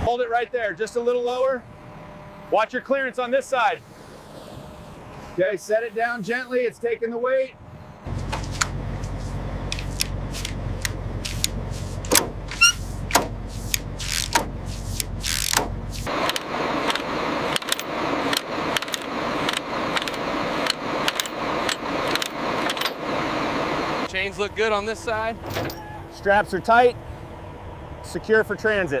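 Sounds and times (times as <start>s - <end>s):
heavy machine humming: 0.0s - 6.0s, 7.6s - 29.0s
metal chains clinking: 21.1s - 23.0s.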